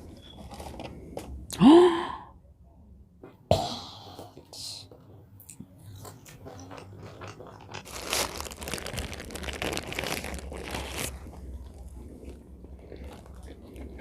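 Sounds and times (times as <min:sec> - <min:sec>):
chewing crunchy food: 0:05.4 - 0:14.0.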